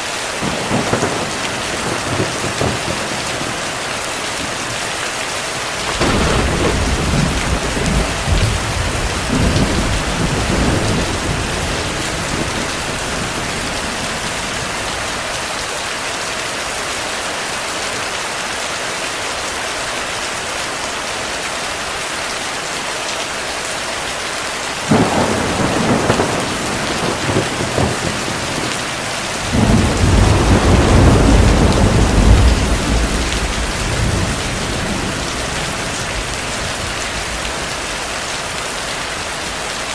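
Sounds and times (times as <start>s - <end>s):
heavy rain: 0.0s - 39.9s
thunder rumbling: 0.4s - 4.8s, 5.8s - 15.5s, 24.9s - 38.6s.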